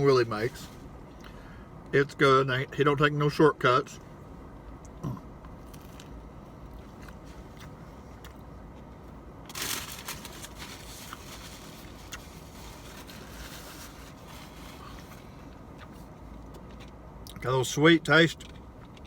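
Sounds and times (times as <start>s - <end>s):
low background hum: 0.0s - 19.0s
person chewing crunchy food: 4.9s - 9.2s.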